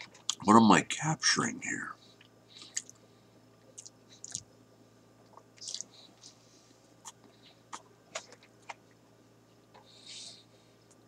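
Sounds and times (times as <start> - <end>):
person chewing: 2.6 - 3.0, 3.7 - 4.5, 5.3 - 6.3
wet mouth clicks and smacks: 2.6 - 3.0, 3.8 - 4.5, 5.3 - 5.9.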